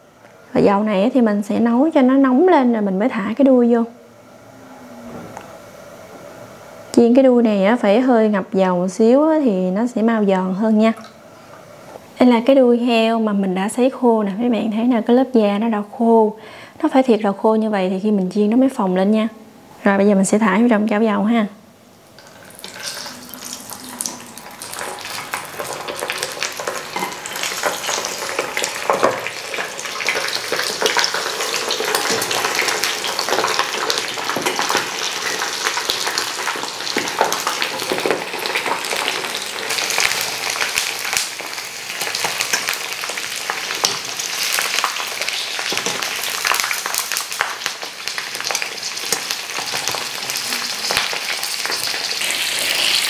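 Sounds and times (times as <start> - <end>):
oil sizzling with crackles and pops: 22.0 - 53.0.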